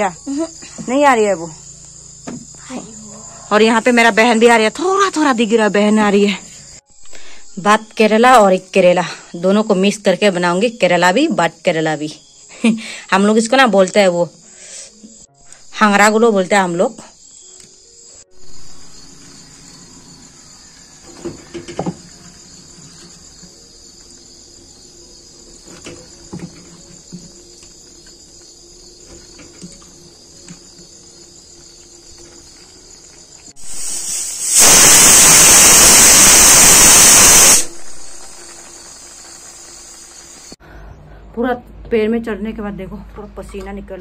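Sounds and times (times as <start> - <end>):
crickets chirring: 0.0 - 40.8
loud even hiss: 18.1 - 27.2, 33.4 - 40.6.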